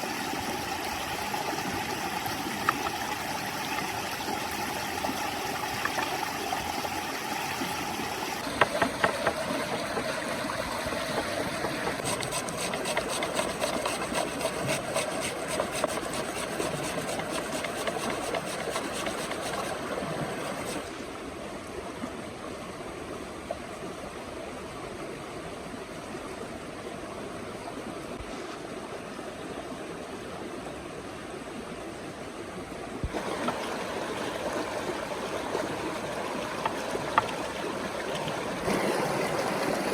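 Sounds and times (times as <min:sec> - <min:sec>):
stream running: 0:00.0 - 0:39.9
sharp knocks: 0:08.4 - 0:10.3
fast run of clicks: 0:08.4 - 0:19.8.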